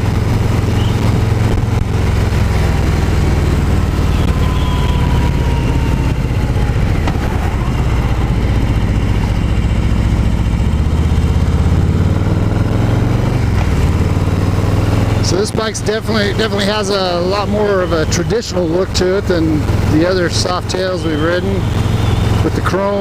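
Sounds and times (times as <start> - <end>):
wind noise: 0.0 - 10.6
motorcycle engine running: 0.0 - 23.0.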